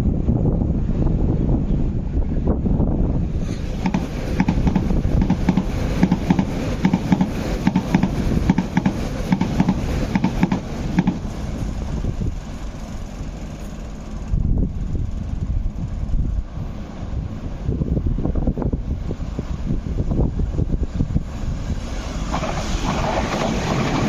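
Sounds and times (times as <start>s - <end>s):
low train rumble: 0.0s - 24.0s
steady rush of passing train: 0.0s - 24.0s
train wheels clattering on rails: 3.4s - 14.2s, 21.7s - 24.0s.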